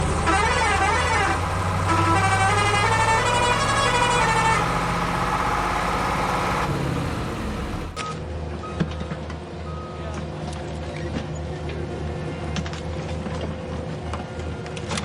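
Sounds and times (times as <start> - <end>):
vehicle engine hum: 0.0 - 8.0.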